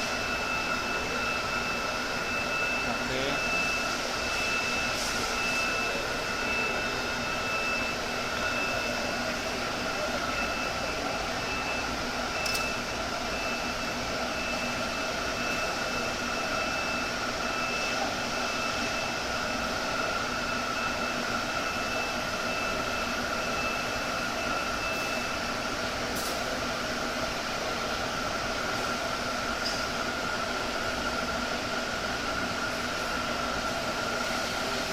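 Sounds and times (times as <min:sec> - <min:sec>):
machine whirr: 0:10.3 - 0:14.7.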